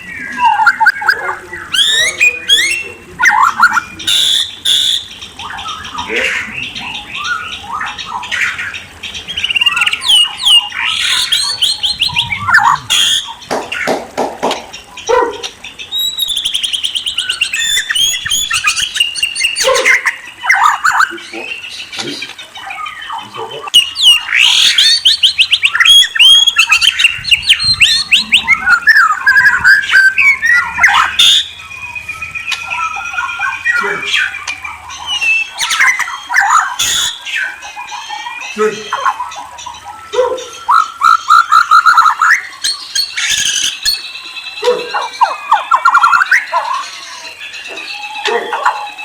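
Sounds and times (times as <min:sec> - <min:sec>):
harsh rasping bird notes: 0:00.0 - 0:13.9
songbird singing whistles and trills: 0:00.0 - 0:14.0, 0:14.6 - 0:49.0.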